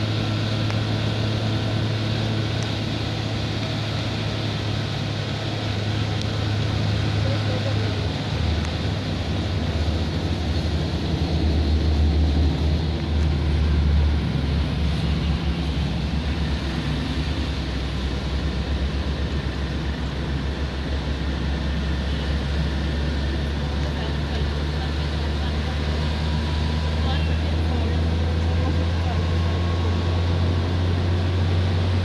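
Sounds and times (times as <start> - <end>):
car engine rumble: 0.0 - 32.0
tyres on wet road: 0.0 - 32.0.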